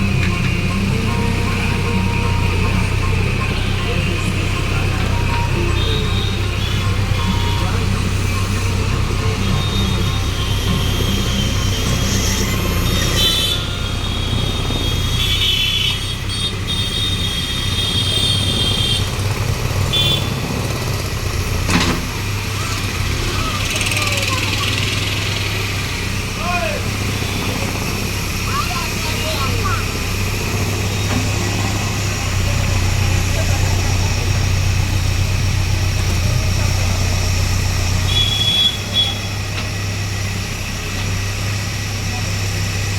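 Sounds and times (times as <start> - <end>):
high-pitched whine: 0.0 - 15.4
heavy machine engine running: 0.0 - 42.9.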